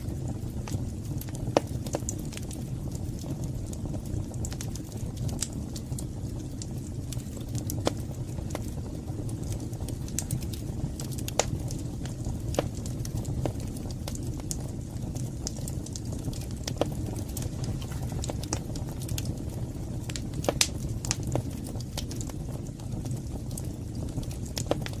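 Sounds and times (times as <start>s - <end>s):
fire crackling and popping: 0.0s - 25.0s
low rumble of flames: 0.0s - 25.0s.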